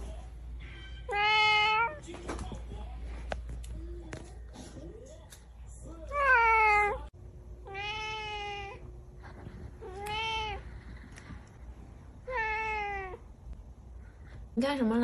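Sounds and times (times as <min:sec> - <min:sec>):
cat meowing: 0:00.8 - 0:02.0, 0:06.1 - 0:07.0, 0:07.6 - 0:08.8, 0:09.8 - 0:10.6, 0:12.2 - 0:13.2.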